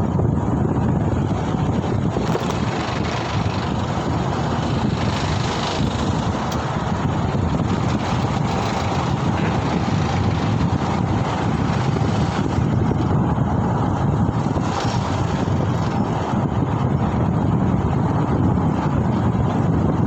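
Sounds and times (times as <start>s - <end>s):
wind rush and road noise: 0.0s - 20.0s.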